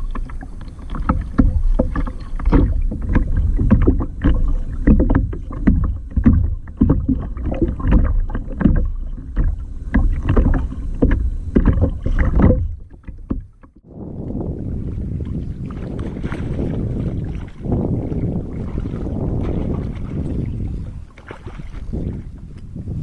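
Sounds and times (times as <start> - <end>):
water splashing around kayak: 0.0 - 23.0
knocks on kayak hull: 0.9 - 13.5.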